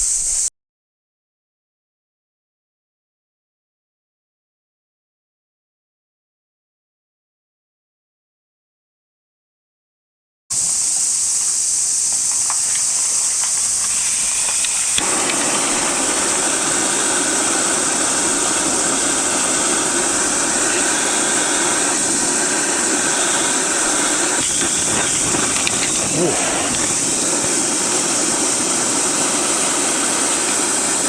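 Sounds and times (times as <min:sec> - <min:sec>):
cicadas buzzing: 0:00.0 - 0:00.5, 0:10.5 - 0:31.0
low rushing noise: 0:14.2 - 0:31.0.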